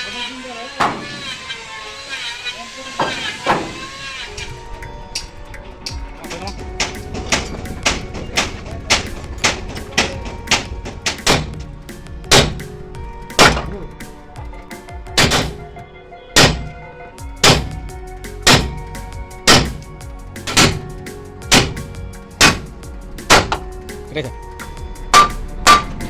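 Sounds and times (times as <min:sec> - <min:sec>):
metal ringing: 0:00.2 - 0:15.8, 0:16.4 - 0:23.8, 0:24.7 - 0:26.0
hammer blows on steel: 0:17.4 - 0:23.7, 0:24.6 - 0:26.0.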